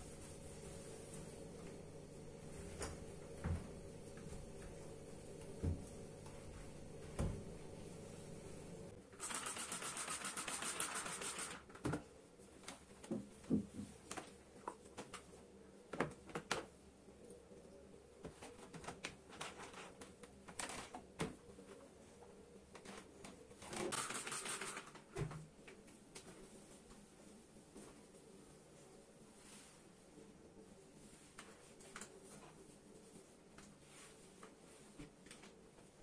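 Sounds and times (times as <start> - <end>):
rapid scrubbing strokes: 9.2 - 11.6.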